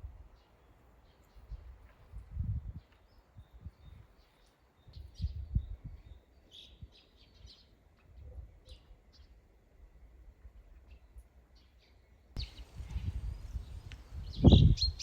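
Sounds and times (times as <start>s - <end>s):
small birds chirping: 0.3s - 9.6s, 10.6s - 15.0s
wind buffeting the microphone: 1.4s - 4.2s, 4.8s - 8.7s, 12.4s - 15.0s.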